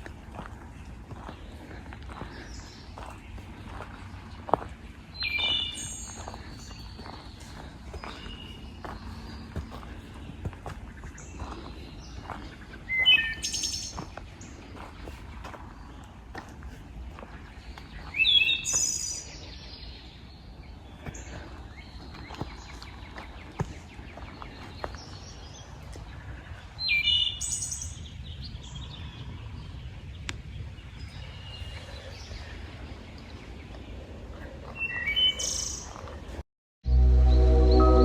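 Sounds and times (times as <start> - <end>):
bird high call notes: 36.9 - 38.0.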